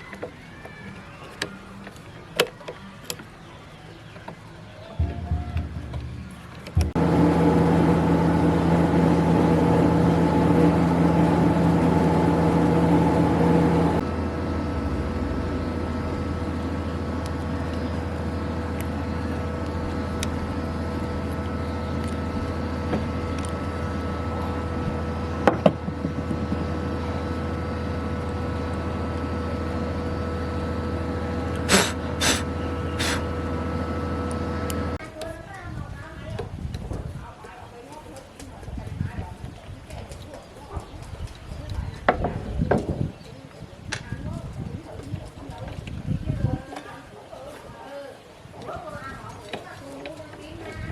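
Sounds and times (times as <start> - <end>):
machine humming: 5.0 - 35.0.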